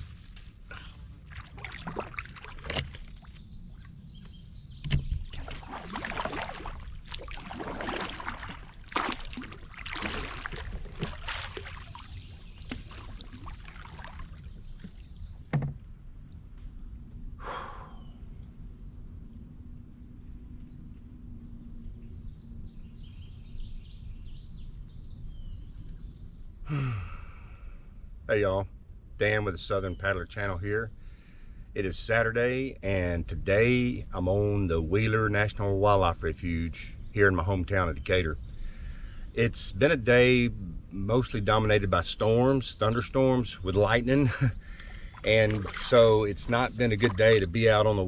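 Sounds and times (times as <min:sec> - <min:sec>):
paddle swishing water: 0:00.0 - 0:04.0, 0:04.8 - 0:15.7, 0:42.8 - 0:48.0
paddle knocking against canoe: 0:00.7 - 0:15.9, 0:43.8 - 0:48.0.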